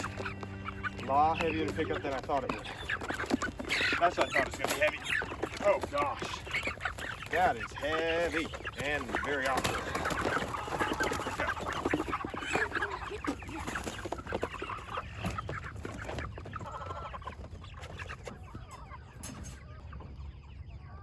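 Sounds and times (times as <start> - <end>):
chickens clucking and squawking: 0.0 - 21.0.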